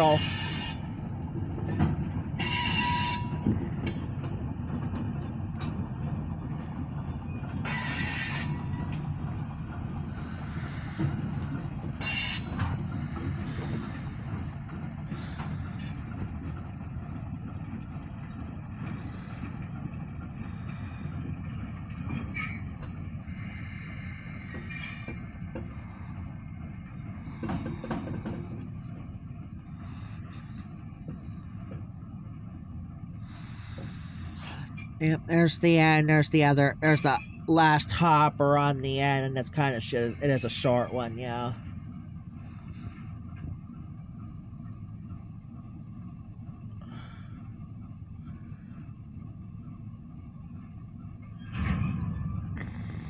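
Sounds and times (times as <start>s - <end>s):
train wheel squeal: 0.0s - 1.0s, 1.7s - 4.2s, 7.2s - 14.5s, 20.5s - 28.6s, 33.2s - 35.0s, 36.6s - 37.5s, 39.8s - 43.1s, 50.8s - 53.0s
freight train rumbling past: 0.0s - 53.0s.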